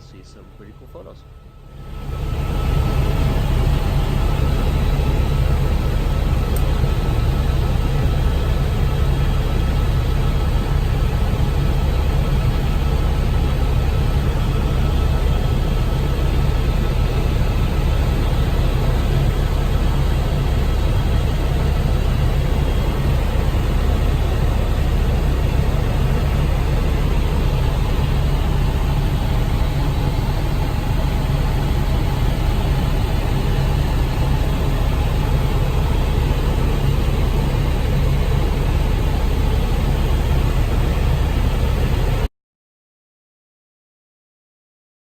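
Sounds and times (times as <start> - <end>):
helicopter engine and rotor drone: 0.0 - 42.3.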